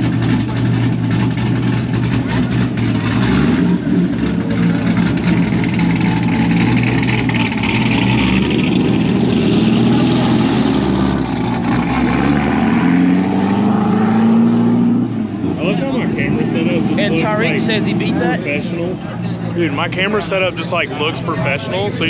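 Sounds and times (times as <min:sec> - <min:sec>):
engine revving: 0:00.0 - 0:18.9
car engines running: 0:00.0 - 0:22.0.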